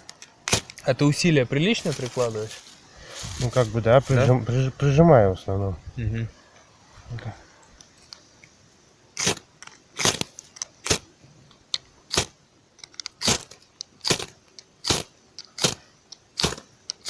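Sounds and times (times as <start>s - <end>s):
fire steel scraping: 0.0s - 4.9s, 9.2s - 11.1s.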